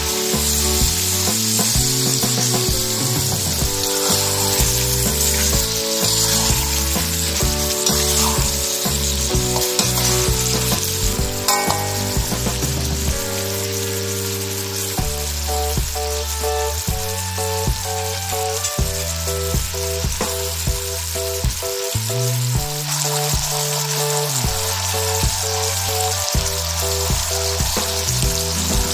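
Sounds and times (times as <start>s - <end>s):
background melody: 0.0s - 28.9s
chicken sizzling in a pan: 0.0s - 28.9s
spatula stirring: 1.4s - 13.5s.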